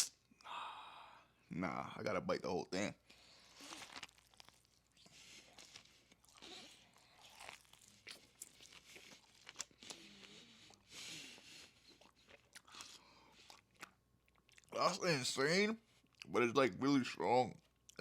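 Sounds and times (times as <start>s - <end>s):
wet crunching chewing: 3.4s - 10.9s, 11.6s - 14.8s.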